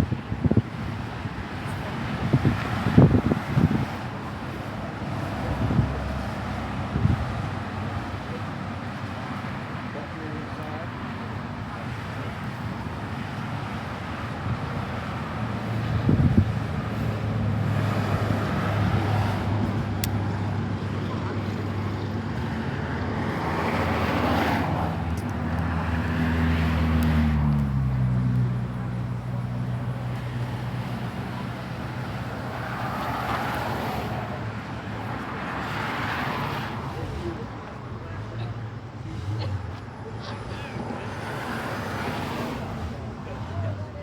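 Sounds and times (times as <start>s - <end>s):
vehicle engine rumbling: 0.0s - 44.0s
vehicle engine running: 16.7s - 32.6s.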